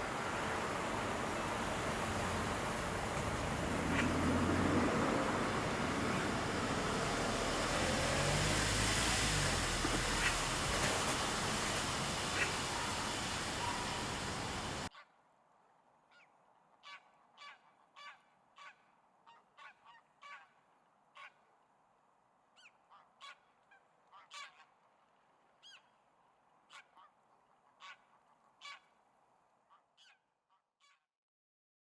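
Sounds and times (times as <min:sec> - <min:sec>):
geese honking: 0:00.0 - 0:08.6, 0:09.2 - 0:15.0.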